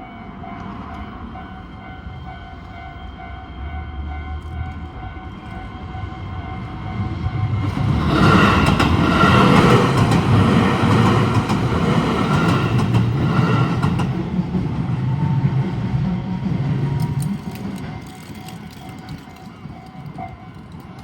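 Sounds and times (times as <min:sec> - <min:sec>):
train wheels clacking over rail joints: 0:07.8 - 0:14.3.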